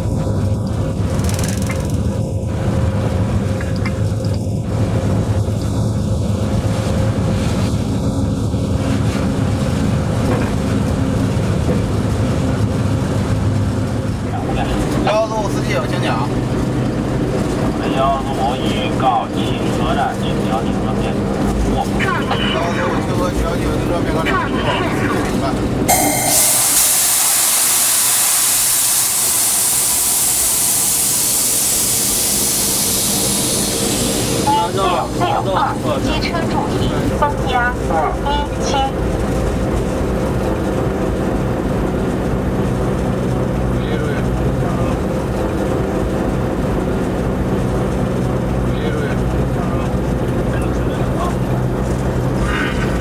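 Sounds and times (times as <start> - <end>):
locomotive cab drone: 0.0 - 53.0
loud steady hiss: 25.9 - 37.2.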